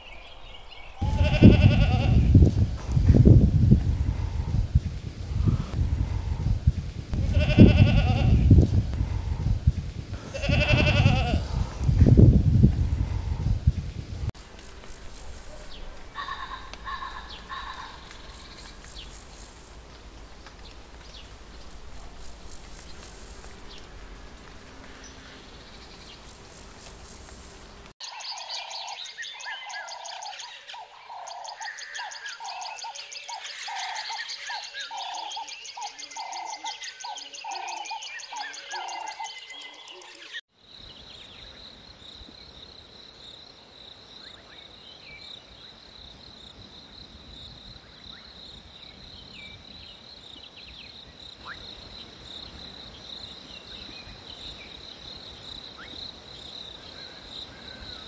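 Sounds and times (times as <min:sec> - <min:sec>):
birds chirping and calling: 0:00.0 - 0:14.3, 0:15.5 - 0:19.5, 0:28.0 - 0:40.4
high insect trill: 0:01.0 - 0:29.2.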